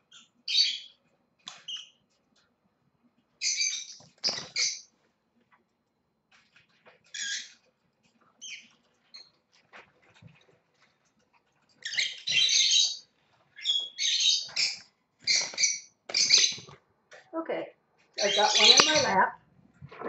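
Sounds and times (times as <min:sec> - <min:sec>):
lovebirds squawking: 0:13.6 - 0:16.7, 0:18.2 - 0:19.3.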